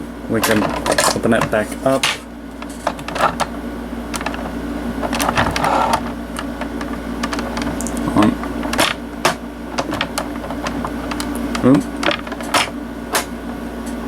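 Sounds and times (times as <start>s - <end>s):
steady low hum: 0.0s - 14.0s
plastic toy clicks and rattles: 4.2s - 6.1s.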